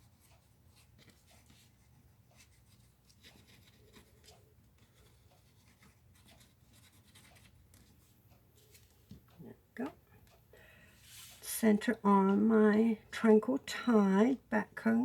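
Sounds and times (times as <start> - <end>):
cardstock rustling and tapping: 0.0 - 9.3.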